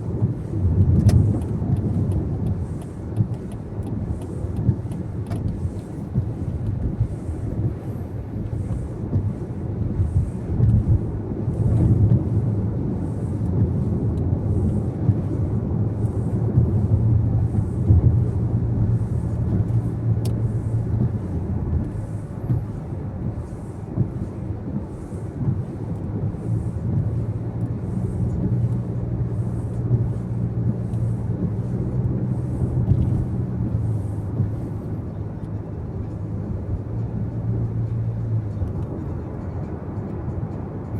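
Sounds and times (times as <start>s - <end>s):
car road and engine noise: 0.0s - 40.9s
faint high tick: 20.2s - 20.4s.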